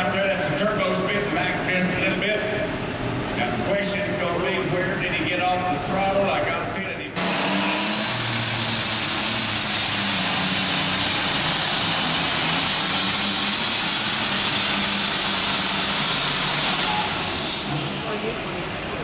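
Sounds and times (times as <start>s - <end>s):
high turbo whine: 0.0s - 19.0s
tractor engine running flat out: 7.2s - 19.0s.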